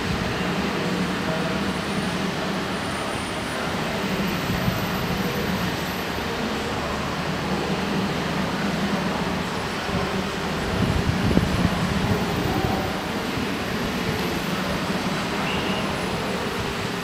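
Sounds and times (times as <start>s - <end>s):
car engines idling: 0.0s - 17.0s.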